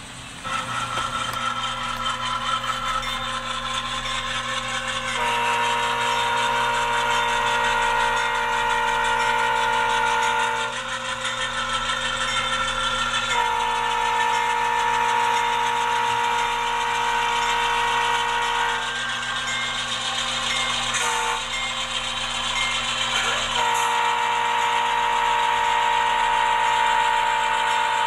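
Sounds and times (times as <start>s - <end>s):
diesel locomotive horn blasts: 0.4s - 28.0s.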